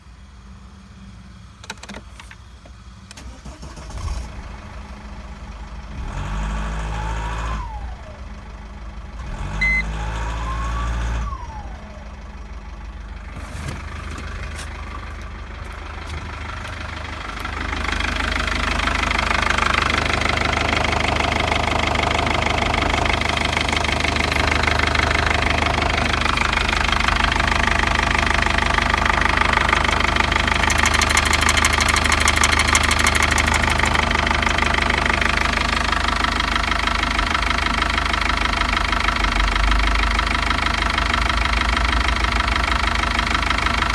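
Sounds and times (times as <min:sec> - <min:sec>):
diesel engine clatter: 0:01.4 - 0:43.9
starter motor whine: 0:09.5 - 0:11.8, 0:16.3 - 0:38.5.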